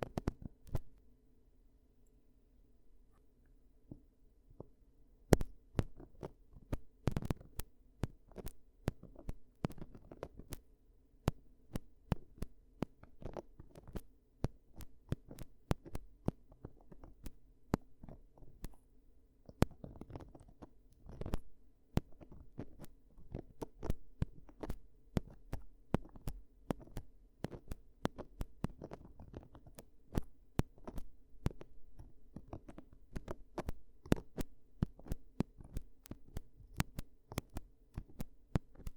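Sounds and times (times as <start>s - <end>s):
tool scratching and clicking in ear: 24.5s - 38.9s.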